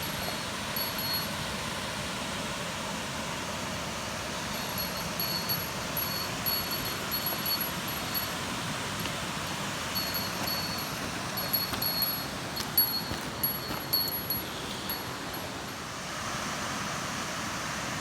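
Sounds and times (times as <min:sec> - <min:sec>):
high-pitched ringing tinkles: 0:00.0 - 0:01.6, 0:04.4 - 0:15.9
waterfall rushing: 0:00.1 - 0:18.0.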